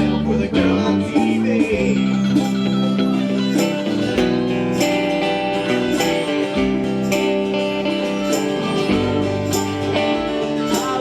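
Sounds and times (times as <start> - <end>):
strummed guitar: 0.0 - 11.0.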